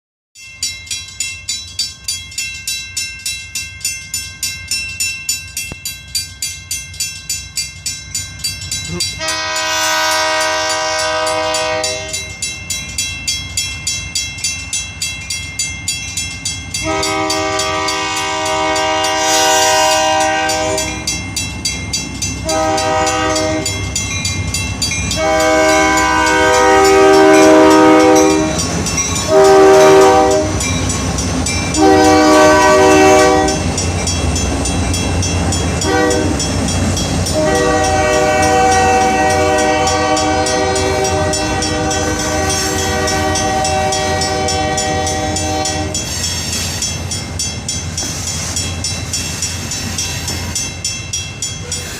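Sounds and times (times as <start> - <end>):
passing train rumble: 0.7 - 51.9
locomotive air horn blasts: 9.2 - 12.3, 16.8 - 21.1, 22.4 - 23.8, 25.2 - 28.6, 29.2 - 30.7, 31.8 - 33.7, 35.8 - 36.4, 37.3 - 46.1.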